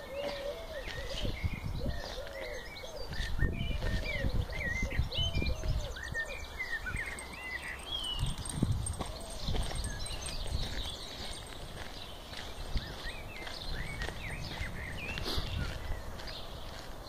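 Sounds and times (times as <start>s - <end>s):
low coo-like bird notes: 0.0s - 10.5s
birds chirping and twittering: 0.0s - 17.0s.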